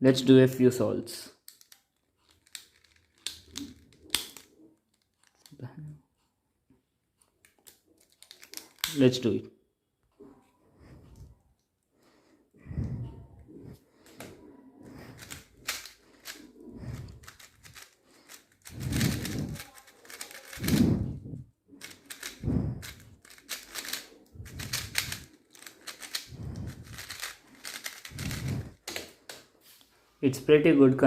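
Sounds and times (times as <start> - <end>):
plastic clicking of speed cube: 1.4 - 5.6, 7.4 - 9.0, 15.2 - 20.9, 21.8 - 29.5.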